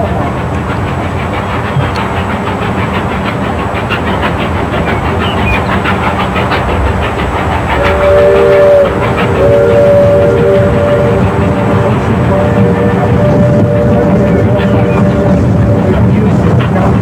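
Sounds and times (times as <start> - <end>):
steam train clattering on track: 0.0 - 17.0
steam whistle blowing: 7.7 - 15.6.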